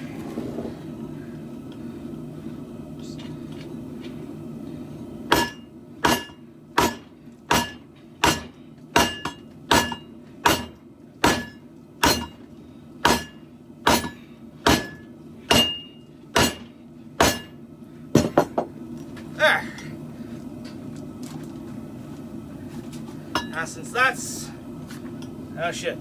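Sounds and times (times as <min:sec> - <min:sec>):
steady low hum: 0:00.0 - 0:26.0
hammer striking steel blade: 0:05.3 - 0:12.4, 0:13.0 - 0:17.6.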